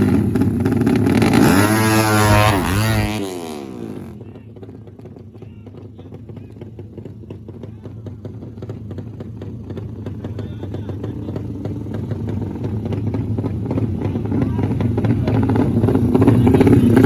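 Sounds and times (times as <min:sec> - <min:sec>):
motorcycle engines rumbling: 0:00.0 - 0:17.0
crowd chatter: 0:09.9 - 0:17.0.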